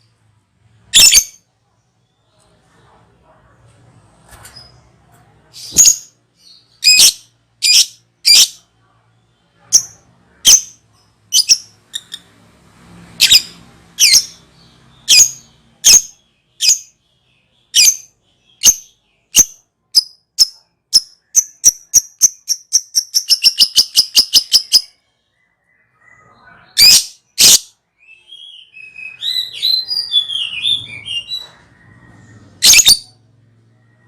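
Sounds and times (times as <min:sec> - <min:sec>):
lovebird chirping and trilling: 0:00.9 - 0:01.4, 0:05.6 - 0:08.7, 0:09.6 - 0:12.3, 0:13.2 - 0:25.0, 0:25.8 - 0:33.2.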